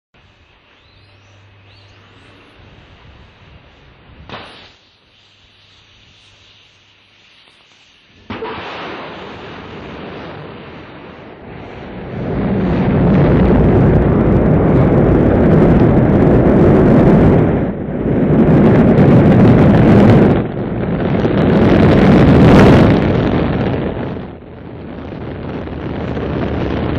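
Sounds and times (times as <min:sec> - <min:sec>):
rocket engines roaring: 0:00.2 - 0:05.0, 0:07.5 - 0:26.9.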